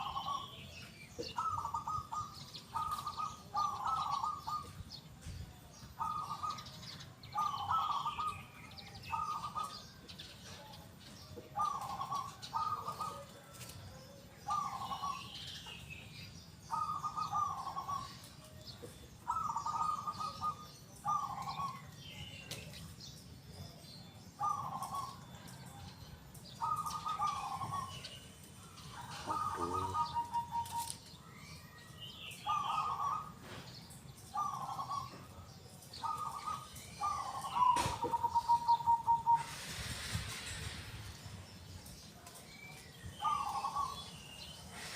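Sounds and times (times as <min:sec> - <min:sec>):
dove trilled cooing: 0:00.0 - 0:05.1, 0:05.8 - 0:15.8, 0:16.6 - 0:22.9, 0:24.1 - 0:40.1, 0:42.6 - 0:44.9
small birds chirping: 0:00.0 - 0:44.9.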